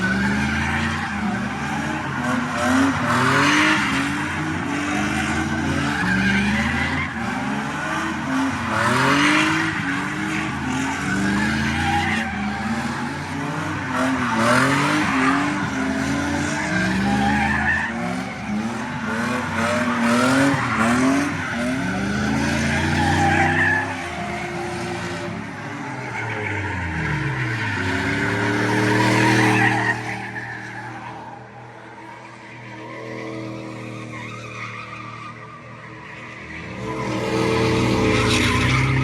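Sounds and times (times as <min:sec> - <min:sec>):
car engine revving: 0:00.0 - 0:30.3
tires squealing: 0:00.0 - 0:39.0.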